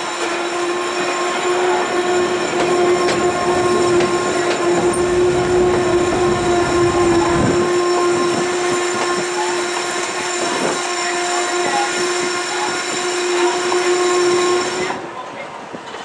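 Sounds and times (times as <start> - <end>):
train rumbling on rails: 0.0 - 16.0
steady tone: 1.3 - 10.3.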